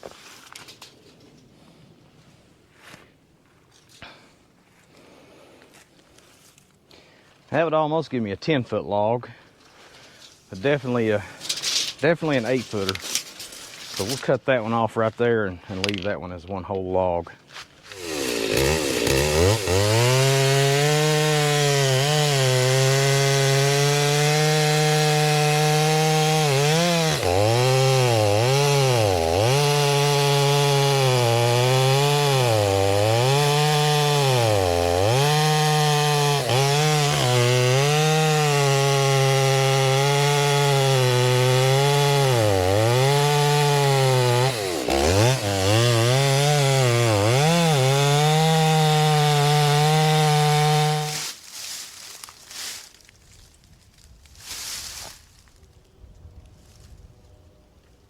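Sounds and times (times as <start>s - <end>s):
chainsaw cutting log: 17.8s - 52.8s.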